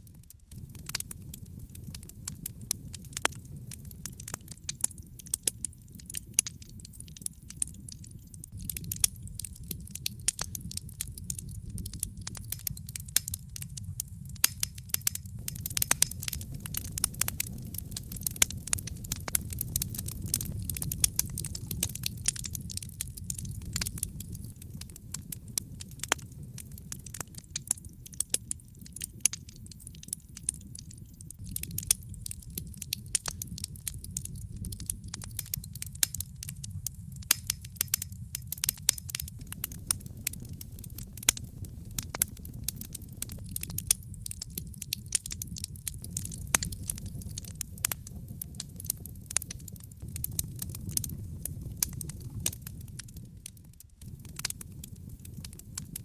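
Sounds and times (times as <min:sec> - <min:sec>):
campfire crackling: 0:00.0 - 0:56.0
low rumble of burning fire: 0:00.0 - 0:56.0.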